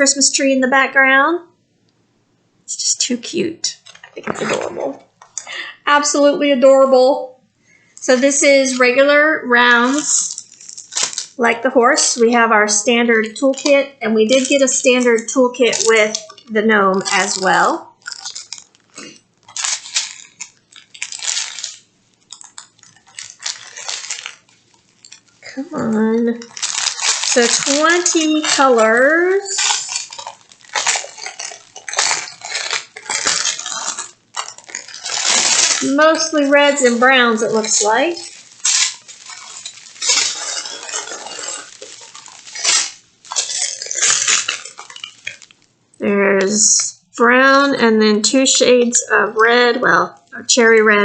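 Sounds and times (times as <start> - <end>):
plastic bags crinkling: 3.7 - 6.3, 7.8 - 45.9
beads clinking in plastic bags: 8.0 - 45.7.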